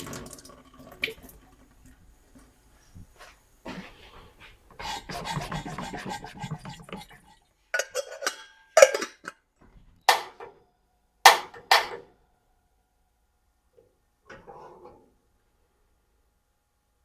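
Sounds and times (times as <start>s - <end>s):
sharp knocks: 11.3s - 12.0s.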